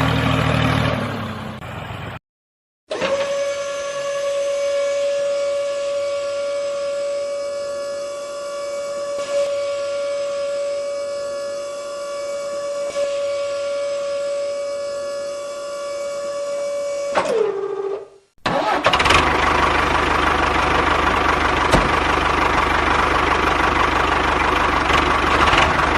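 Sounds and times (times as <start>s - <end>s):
loud rattling engine: 0.0s - 2.2s, 18.5s - 25.9s
small motor whining: 2.9s - 18.0s.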